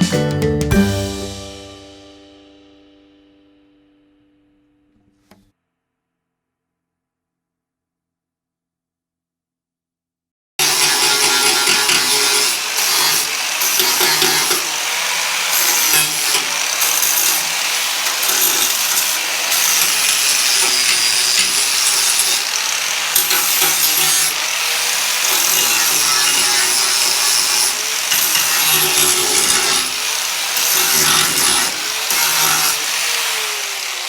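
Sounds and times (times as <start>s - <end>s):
rotary tool grinding metal: 10.6s - 34.0s.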